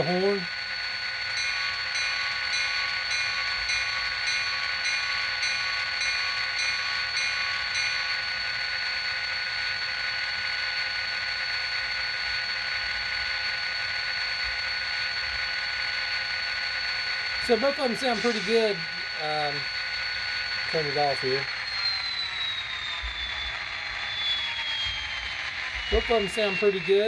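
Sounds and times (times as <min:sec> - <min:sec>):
diesel engine hum through small speaker: 0:00.0 - 0:00.5, 0:17.4 - 0:19.8, 0:20.6 - 0:21.5, 0:25.8 - 0:27.0.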